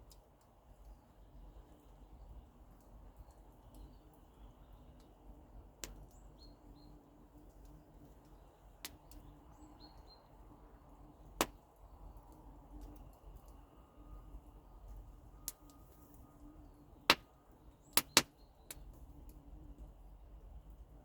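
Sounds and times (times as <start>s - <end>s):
campfire crackling: 0.0s - 21.0s
faint bird chirps: 8.3s - 10.5s
fire popping: 17.1s - 19.4s.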